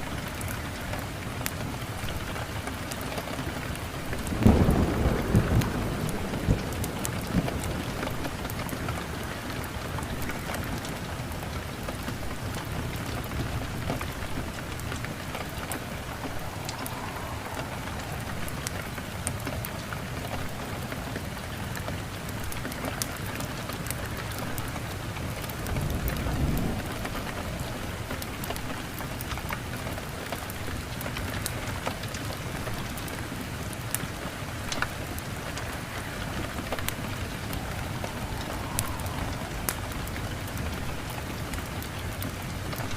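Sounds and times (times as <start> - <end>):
heavy rain falling: 0.0 - 42.9
thunder rumbling: 2.1 - 21.6, 24.0 - 30.0, 34.5 - 42.9.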